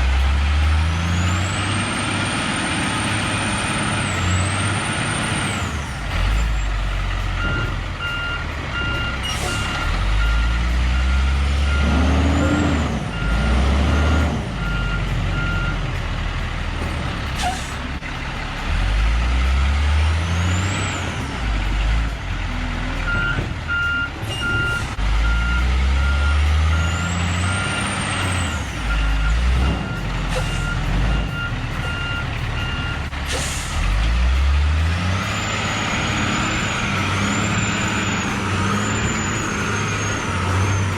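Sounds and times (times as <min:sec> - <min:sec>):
diesel truck engine revving: 0:00.0 - 0:40.9
reversing alarm beeping: 0:01.1 - 0:15.8, 0:23.0 - 0:33.1.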